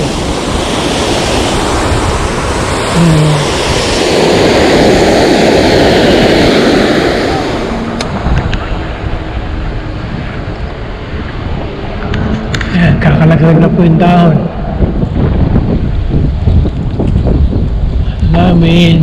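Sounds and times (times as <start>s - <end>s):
fountain water splashing: 0.0s - 9.6s.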